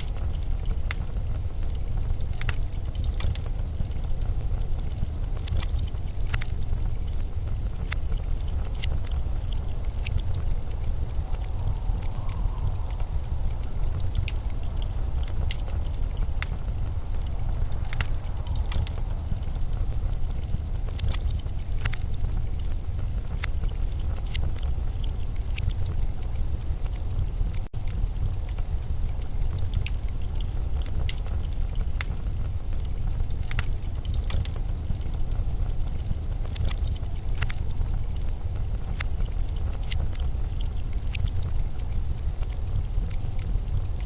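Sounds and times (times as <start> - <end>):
blizzard wind rumbling: 0.0 - 44.0
sharp clicks and crackles: 0.0 - 44.0.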